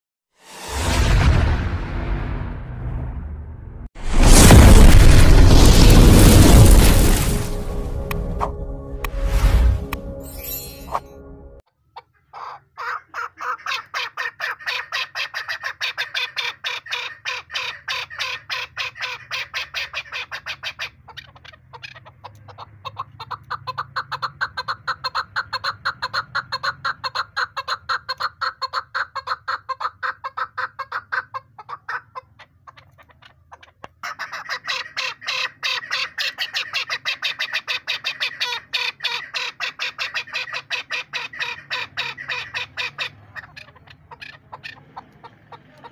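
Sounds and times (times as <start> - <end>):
partridge clucking calls: 12.0 - 45.9.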